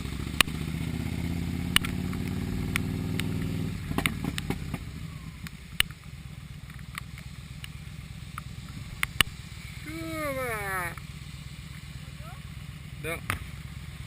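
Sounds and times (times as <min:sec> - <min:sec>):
motorcycle engine running: 0:00.0 - 0:14.0
sharp ticks: 0:00.3 - 0:00.6, 0:01.7 - 0:04.6, 0:05.4 - 0:09.4.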